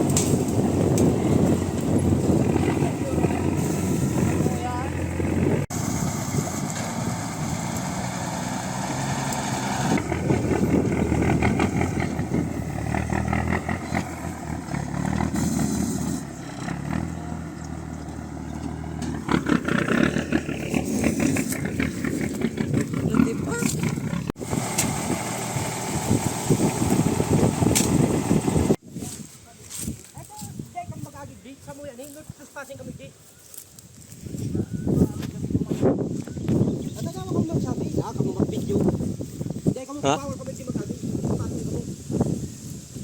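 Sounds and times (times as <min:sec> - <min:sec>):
truck engine running and revving: 0:00.0 - 0:28.8.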